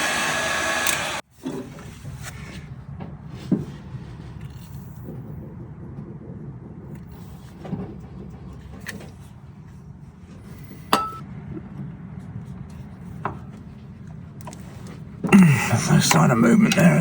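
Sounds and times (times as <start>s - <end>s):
steady low hum: 2.8s - 17.0s
hand tools tapping metal: 11.0s - 11.2s
ringing metal clink: 11.0s - 11.2s.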